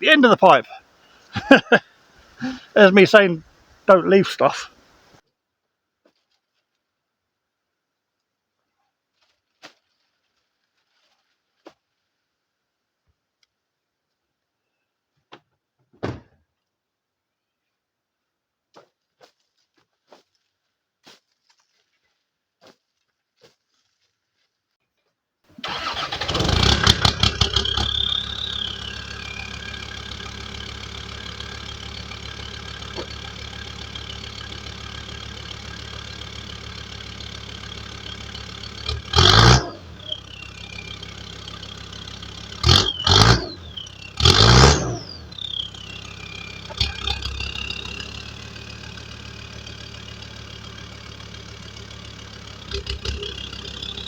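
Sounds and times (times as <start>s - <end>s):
car engine starting and idling: 0.0s - 5.2s, 25.6s - 54.0s
engine revving: 1.3s - 3.3s, 25.6s - 54.0s.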